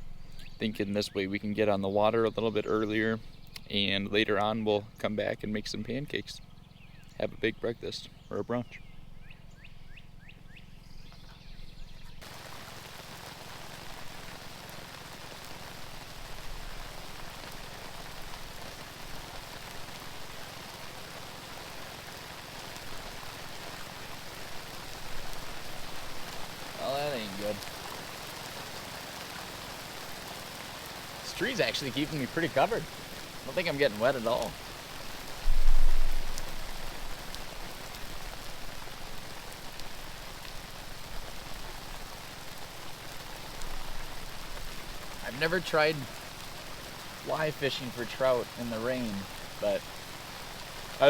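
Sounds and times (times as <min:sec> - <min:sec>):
rain falling: 0:12.2 - 0:51.0
low rumble: 0:35.4 - 0:36.6.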